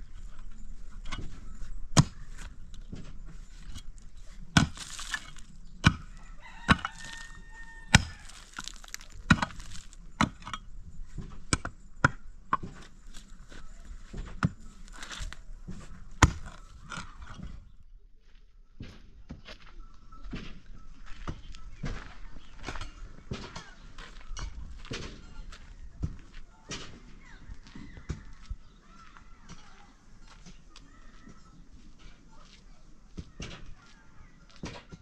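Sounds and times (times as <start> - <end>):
chicken calling: 6.1 - 9.7.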